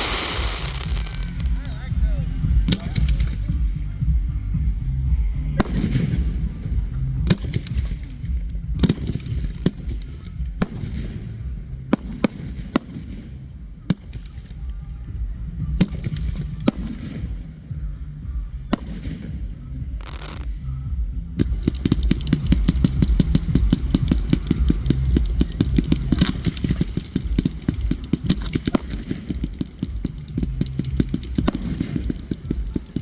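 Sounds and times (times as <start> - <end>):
fireworks bangs: 0.0 - 3.8, 18.7 - 20.5, 21.4 - 33.0
steady low rumble: 0.0 - 33.0.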